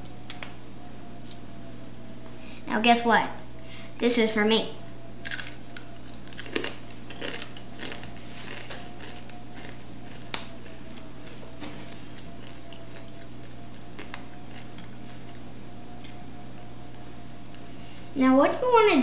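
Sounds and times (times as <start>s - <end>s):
faint whine: 0.0s - 19.0s
low hum: 0.0s - 19.0s
child chewing crunchy bacon: 5.2s - 16.2s.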